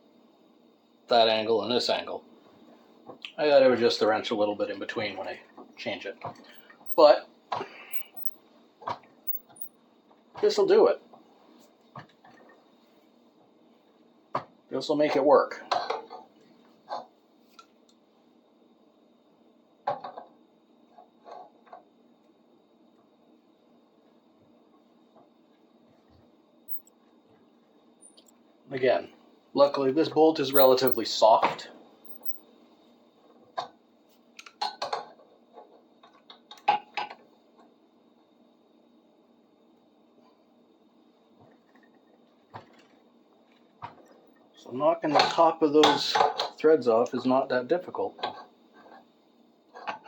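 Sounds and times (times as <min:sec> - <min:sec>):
metal wrench clinking: 0:07.9 - 0:08.4, 0:09.3 - 0:09.7, 0:26.7 - 0:26.9, 0:30.6 - 0:31.0, 0:32.1 - 0:32.4.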